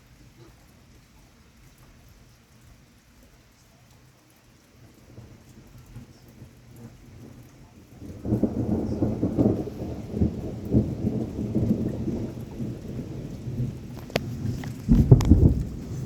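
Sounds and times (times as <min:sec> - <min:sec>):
faint rain: 0:00.0 - 0:16.0
thunder rumbling and crackling: 0:04.7 - 0:16.0.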